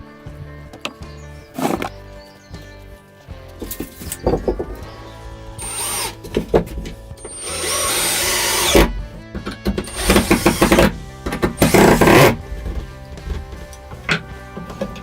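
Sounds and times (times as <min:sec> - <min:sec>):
background music: 0:00.0 - 0:15.0
power tool whining: 0:01.6 - 0:02.0, 0:04.1 - 0:12.9.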